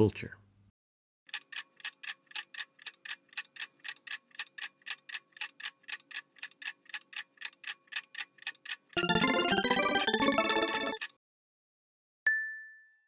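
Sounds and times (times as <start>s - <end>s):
clock ticks: 1.3s - 11.2s.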